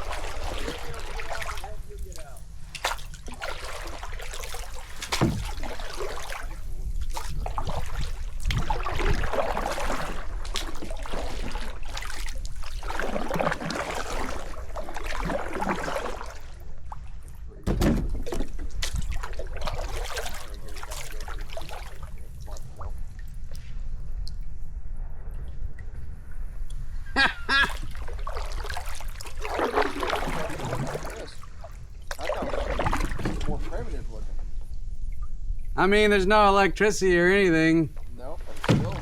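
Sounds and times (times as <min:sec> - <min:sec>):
water sloshing around kayak: 0:00.0 - 0:24.3, 0:25.0 - 0:35.8, 0:37.6 - 0:39.0
sharp knocks: 0:05.1 - 0:05.7, 0:17.6 - 0:18.4.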